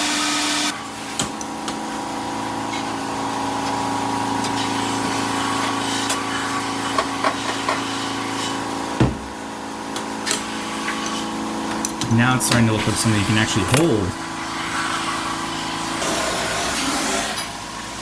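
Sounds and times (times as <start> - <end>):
workshop machinery humming: 10.7 - 14.3.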